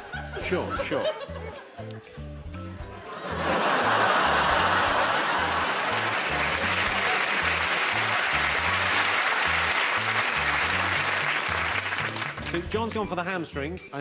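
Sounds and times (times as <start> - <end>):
background music with bass line: 0.0 - 14.0
audience applause: 3.1 - 12.7.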